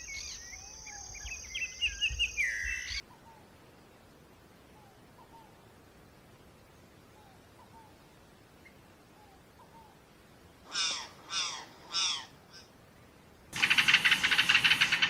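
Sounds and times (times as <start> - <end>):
bird harsh cawing: 10.7 - 12.7, 13.6 - 15.0
loud buzzing rattle: 13.6 - 15.0.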